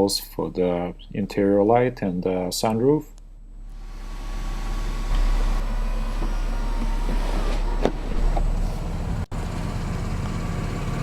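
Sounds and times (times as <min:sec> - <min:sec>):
low vehicle rumble: 0:03.2 - 0:11.0.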